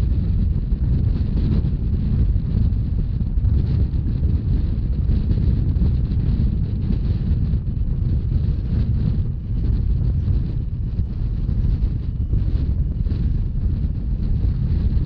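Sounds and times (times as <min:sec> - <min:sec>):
train rumbling along track: 0:00.0 - 0:15.0
wind buffeting microphone: 0:00.0 - 0:15.0.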